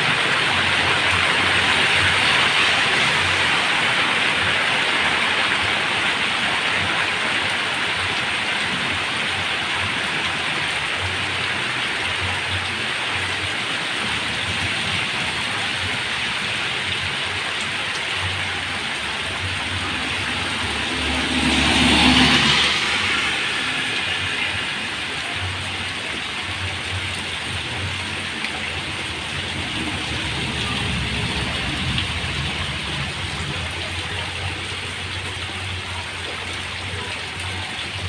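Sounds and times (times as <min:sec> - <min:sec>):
heavy rain pouring: 0:00.0 - 0:38.0
low rumble: 0:28.8 - 0:34.7.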